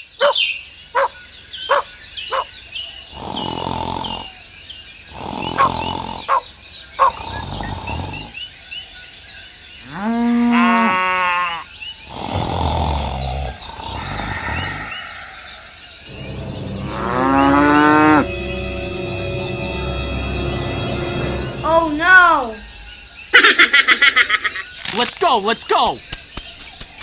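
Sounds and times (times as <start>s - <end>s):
birds chirping: 0.0s - 9.8s, 11.7s - 27.0s
coarse noisy animal calls: 1.0s - 4.4s, 5.1s - 8.4s, 9.9s - 19.2s
long low animal call: 3.1s - 4.4s, 5.1s - 6.4s, 9.8s - 18.3s.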